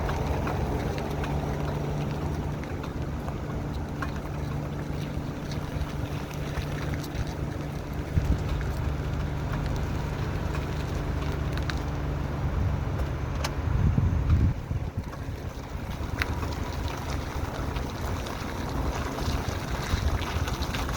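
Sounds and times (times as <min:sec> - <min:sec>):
vehicle humming and rumbling: 0:00.0 - 0:20.9.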